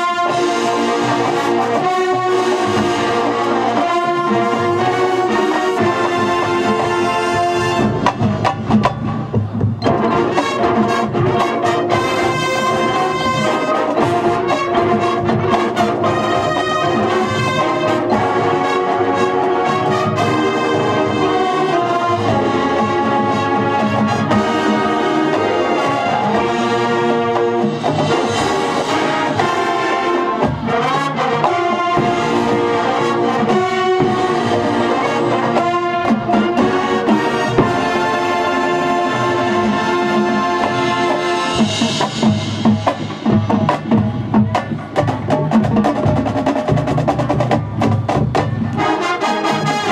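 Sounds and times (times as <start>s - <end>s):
marching band brass: 0.0s - 49.9s
sharp percussion hits: 5.9s - 18.9s.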